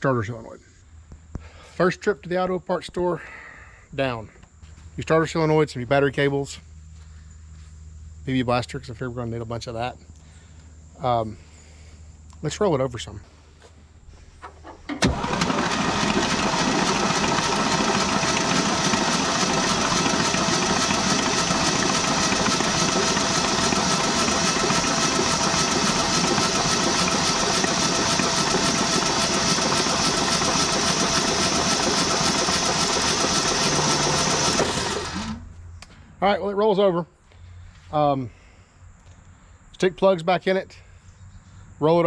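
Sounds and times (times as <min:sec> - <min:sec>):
starter motor cranking engine: 0:14.4 - 0:35.5.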